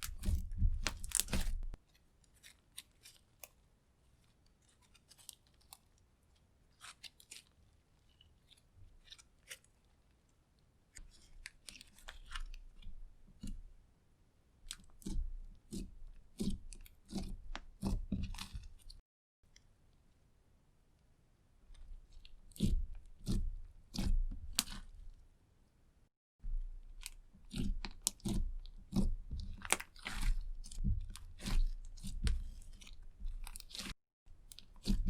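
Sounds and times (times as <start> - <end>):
slime squelching: 0.0 - 3.5, 6.7 - 9.8, 14.7 - 19.0, 21.8 - 25.0, 26.9 - 35.0.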